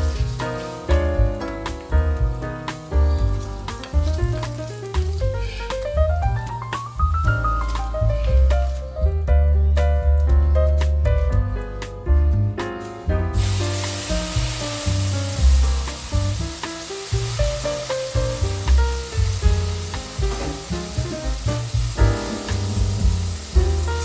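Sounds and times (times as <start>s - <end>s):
food sizzling in a pan: 0.0s - 1.9s, 2.7s - 8.9s, 13.4s - 24.0s
gentle background music: 0.0s - 24.0s.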